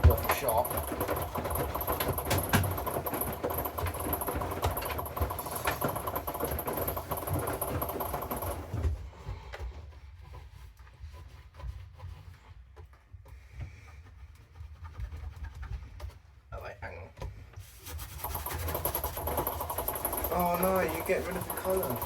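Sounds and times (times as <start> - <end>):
washing machine drum turning: 0.0 - 9.0, 18.1 - 22.0.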